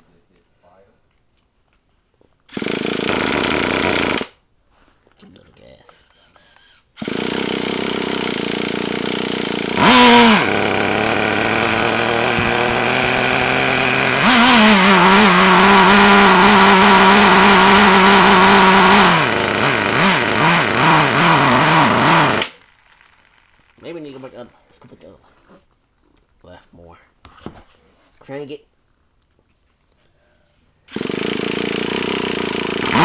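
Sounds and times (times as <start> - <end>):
small nitro engine revving: 2.5 - 4.4, 7.0 - 23.8, 30.9 - 33.0.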